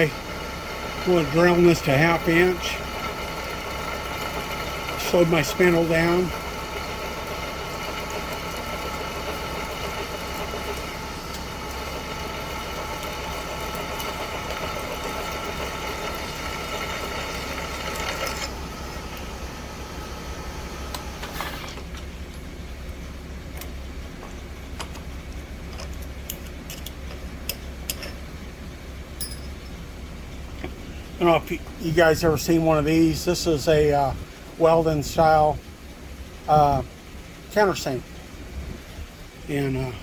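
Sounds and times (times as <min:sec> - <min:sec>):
milling machine spindle whine: 0:00.0 - 0:22.0
low hum: 0:10.4 - 0:40.0.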